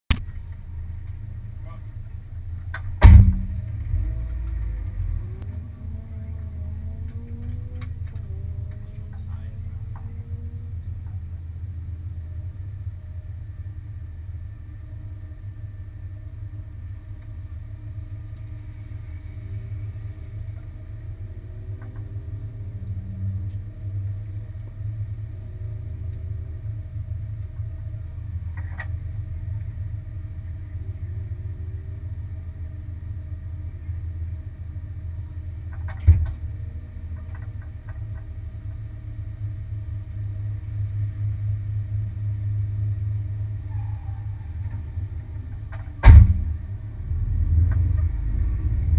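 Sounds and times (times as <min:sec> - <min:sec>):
car engine idling: 0:00.1 - 0:48.9
sharp knock: 0:03.0 - 0:03.6.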